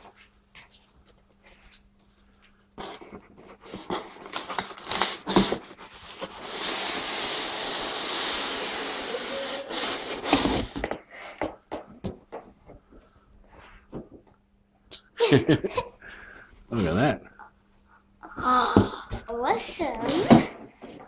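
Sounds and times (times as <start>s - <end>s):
cardboard sliding hiss: 2.8s - 11.0s.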